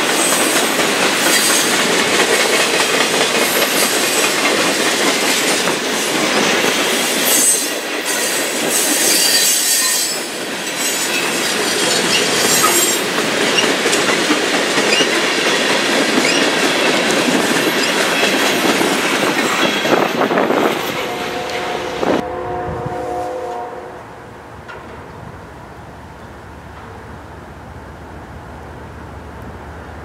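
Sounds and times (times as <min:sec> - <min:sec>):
freight train wheels rumbling: 0:00.0 - 0:30.0
high wheel squeals: 0:06.9 - 0:13.9, 0:16.2 - 0:16.6.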